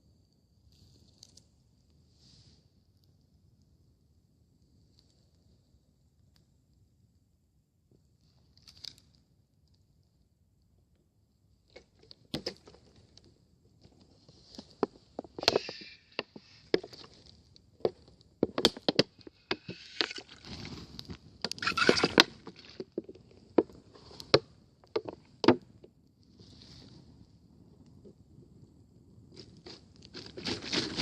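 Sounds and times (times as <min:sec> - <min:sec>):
soft hiss: 0:00.0 - 0:11.6
campfire crackling: 0:01.0 - 0:31.0.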